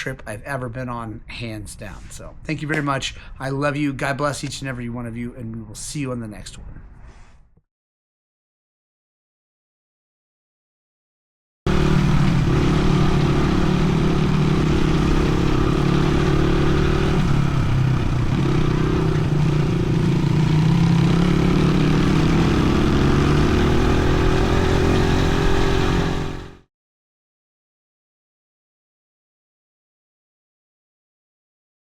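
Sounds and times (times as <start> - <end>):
dirt bike engine running: 11.7 - 26.6.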